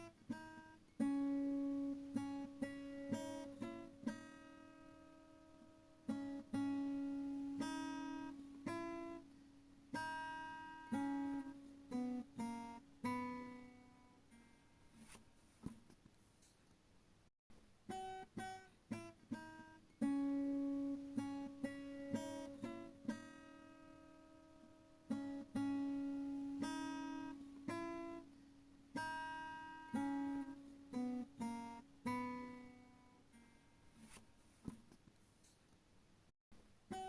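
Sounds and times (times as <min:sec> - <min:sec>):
solo acoustic guitar: 0:00.0 - 0:16.0, 0:17.6 - 0:35.0.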